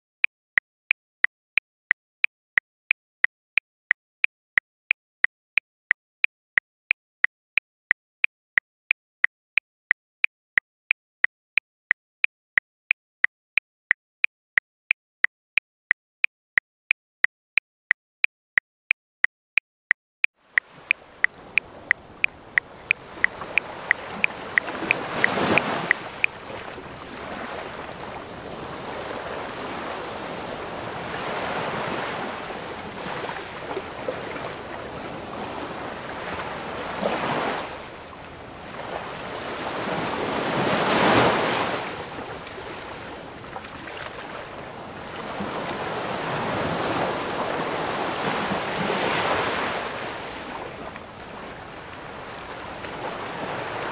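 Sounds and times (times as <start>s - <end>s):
metronome ticking: 19.5s - 26.4s
sea waves washing ashore: 20.4s - 53.9s.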